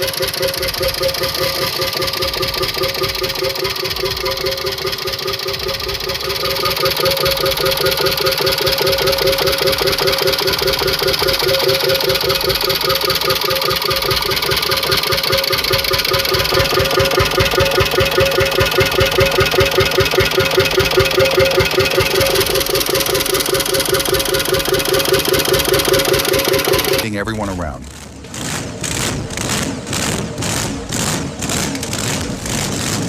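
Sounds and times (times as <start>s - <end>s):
engine running with rapid exhaust beat: 0.0s - 27.1s, 27.8s - 33.0s.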